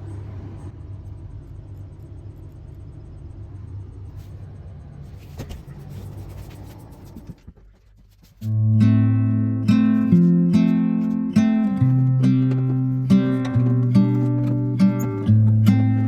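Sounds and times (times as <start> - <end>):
low hum: 0.0 - 16.0
guitar music: 8.4 - 16.0.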